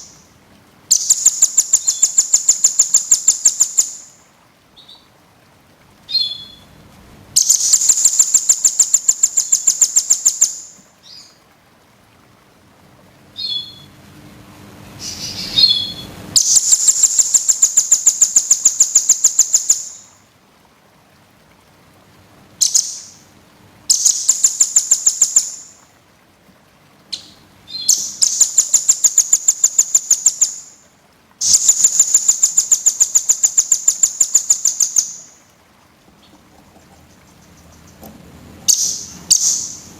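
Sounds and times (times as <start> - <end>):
songbird trilling and chirping: 0.9 - 4.1, 6.1 - 6.7, 7.4 - 11.4, 13.4 - 13.9, 15.1 - 20.1, 22.6 - 23.2, 23.9 - 25.7, 27.1 - 30.8, 31.4 - 35.4, 38.7 - 39.9.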